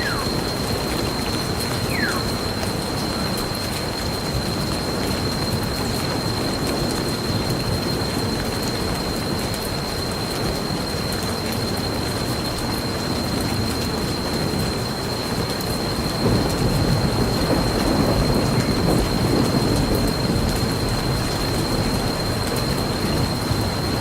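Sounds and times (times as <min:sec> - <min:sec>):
thin high tone: 0:00.0 - 0:00.8, 0:01.8 - 0:03.3
steady rain: 0:00.0 - 0:24.0
low rumble of thunder: 0:15.8 - 0:24.0.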